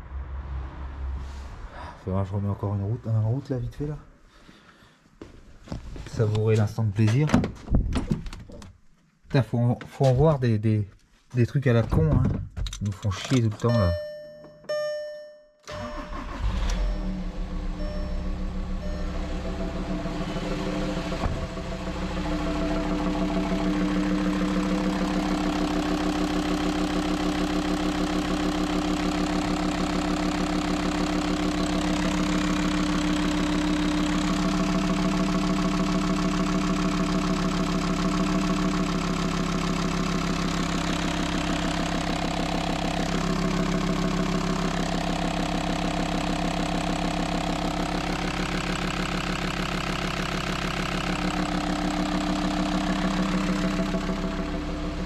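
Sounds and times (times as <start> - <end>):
diesel engine idling: 15.8 - 55.0
loud engine intake noise: 15.9 - 35.6, 39.0 - 55.0.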